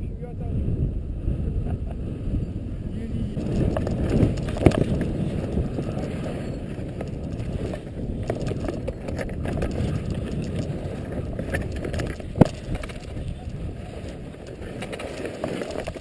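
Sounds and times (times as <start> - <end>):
wind buffeting microphone: 0.0 - 16.0
scattered clicks: 3.4 - 16.0.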